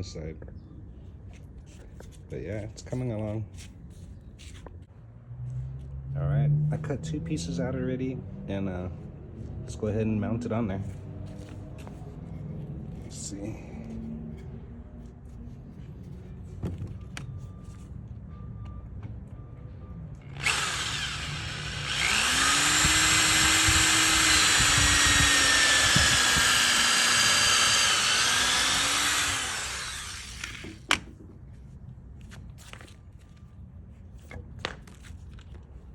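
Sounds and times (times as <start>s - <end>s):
power drill boring into wood: 20.2s - 30.9s.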